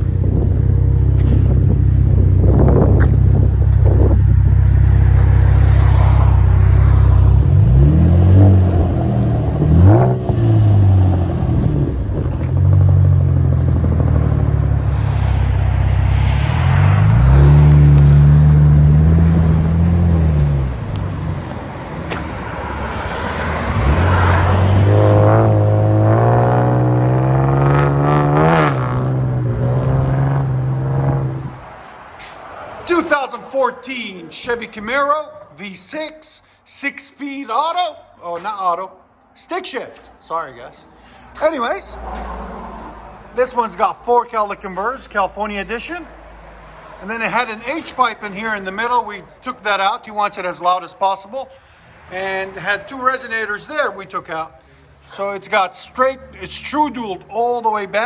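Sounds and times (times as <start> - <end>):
car engine idling and revving: 0.0 - 32.7.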